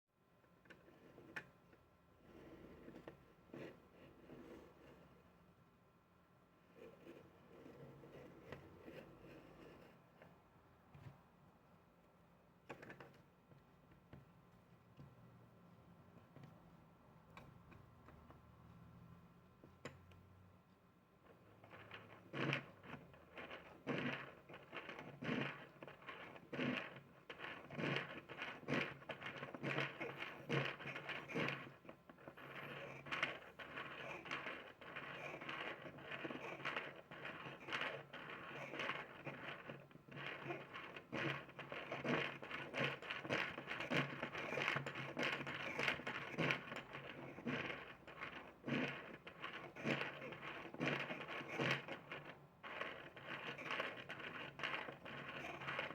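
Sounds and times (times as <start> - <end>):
plastic cam rattling and scraping: 21.3 - 55.9.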